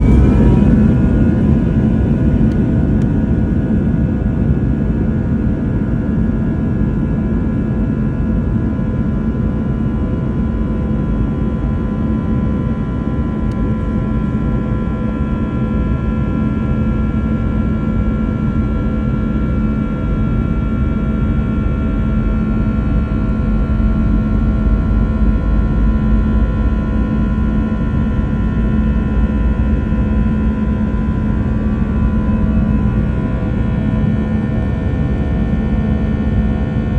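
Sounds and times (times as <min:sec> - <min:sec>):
engine whining tones: 0:00.0 - 0:03.2
jet engines loud rumble: 0:00.0 - 0:36.9.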